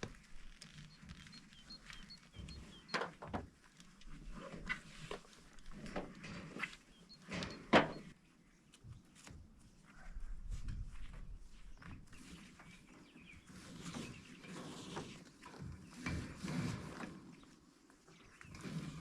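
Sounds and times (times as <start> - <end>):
knocks and scraping handling: 0.0 - 8.2
faint bird chirps: 0.7 - 3.2.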